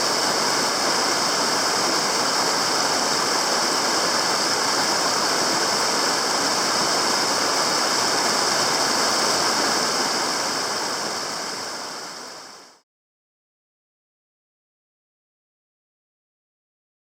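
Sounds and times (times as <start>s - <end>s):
stream water flowing: 0.0s - 12.8s.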